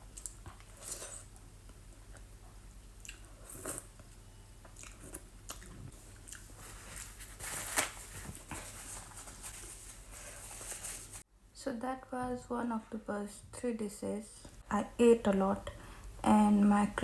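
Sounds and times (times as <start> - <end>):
person chewing and biting food: 3.0 - 6.7.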